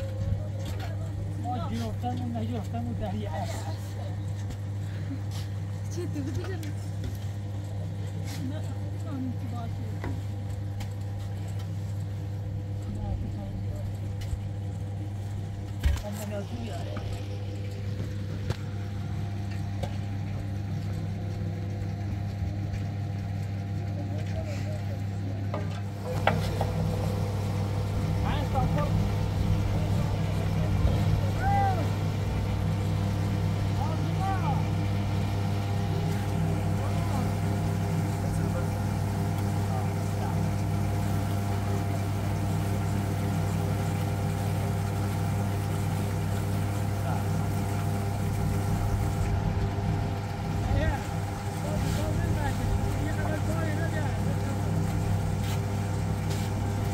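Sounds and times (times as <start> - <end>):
engine droning steadily: 0.0 - 56.9
low machine hum: 0.0 - 56.9.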